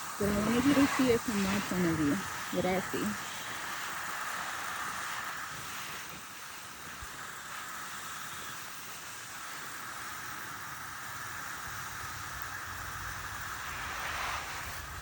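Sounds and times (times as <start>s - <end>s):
garden hose spraying water: 0.0s - 15.0s
wind rumble on microphone: 11.8s - 15.0s.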